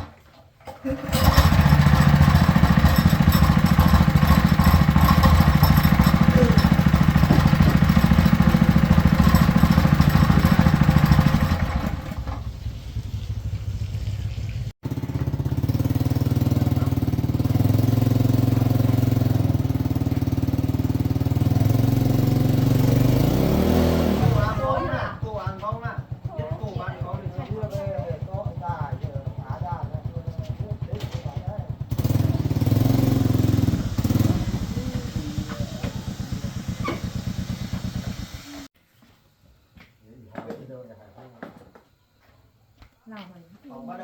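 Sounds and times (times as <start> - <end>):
boat engine puttering: 0.7 - 12.5, 33.2 - 38.2.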